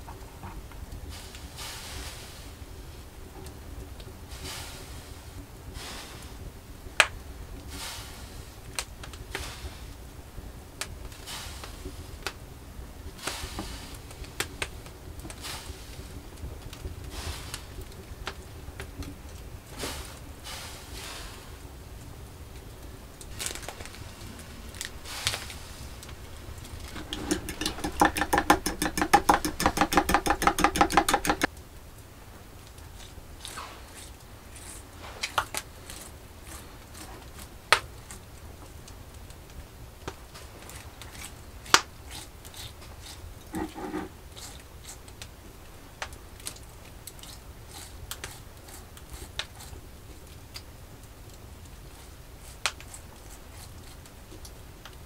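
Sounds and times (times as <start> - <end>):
sharp clicks and knocks of handling: 26.8 - 31.6
quick even run of taps: 27.0 - 31.5.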